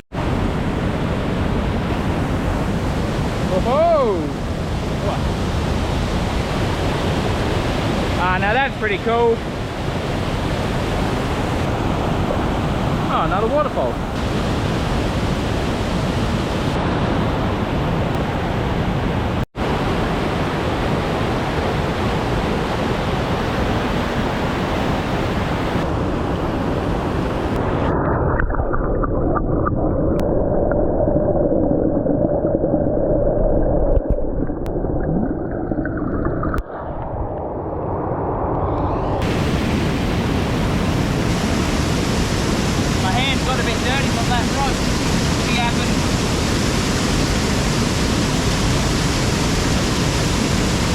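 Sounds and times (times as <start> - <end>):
waterfall rushing: 1.8 - 17.1, 39.2 - 50.9.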